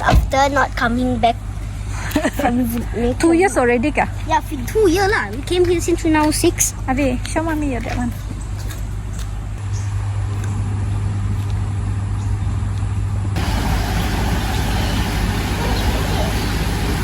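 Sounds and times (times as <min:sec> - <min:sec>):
vehicle engine rumble: 0:00.0 - 0:17.0
broad rushing hiss: 0:13.4 - 0:17.0.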